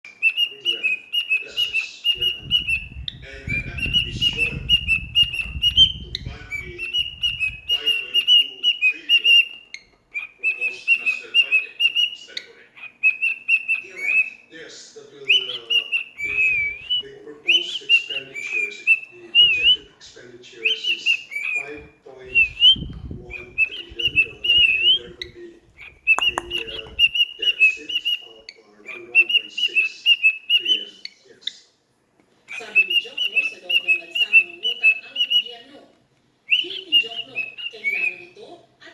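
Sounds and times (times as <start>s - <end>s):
cockatiel chirping: 0.0s - 31.7s, 32.5s - 35.8s, 36.5s - 38.9s
bird whistled notes: 0.1s - 14.5s, 15.2s - 20.0s, 20.6s - 28.4s.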